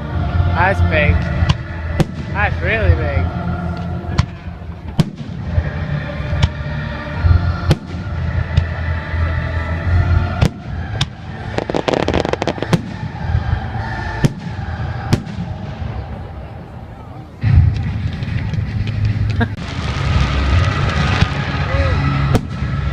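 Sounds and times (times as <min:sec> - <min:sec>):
low rumble: 0:00.0 - 0:22.9
rapid firework crackling: 0:01.5 - 0:03.0, 0:04.1 - 0:05.8, 0:10.4 - 0:16.4, 0:17.4 - 0:22.9
firework shells bursting: 0:10.4 - 0:13.2.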